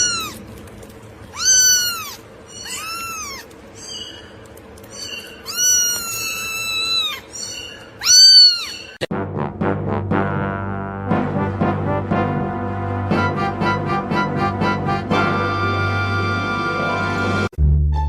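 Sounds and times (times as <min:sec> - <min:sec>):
cat meowing: 0:00.0 - 0:00.4, 0:01.3 - 0:04.0, 0:05.0 - 0:08.8.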